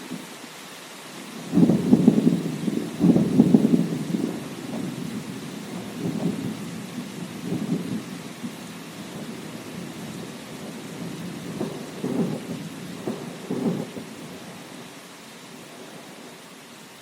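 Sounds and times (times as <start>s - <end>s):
steady rain: 0.0s - 17.0s
rumbling thunder: 1.4s - 14.8s.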